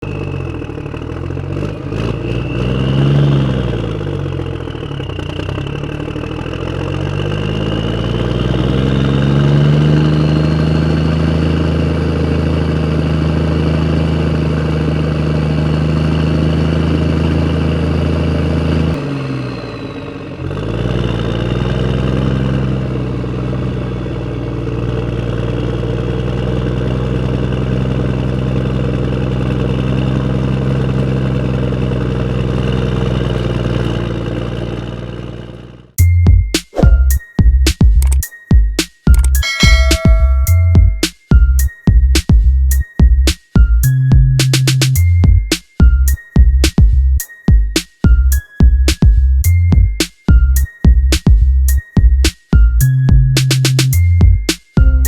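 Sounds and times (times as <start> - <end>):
engine running: 0.0 - 37.2.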